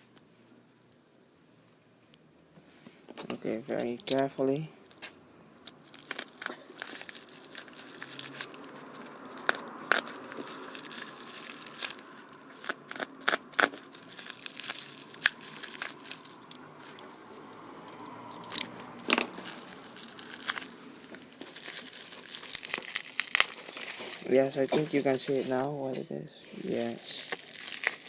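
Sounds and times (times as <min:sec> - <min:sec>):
bubble wrap crinkling and crackling: 0:04.9 - 0:28.0
plastic tearing: 0:05.7 - 0:17.2, 0:17.9 - 0:25.7, 0:26.5 - 0:28.0.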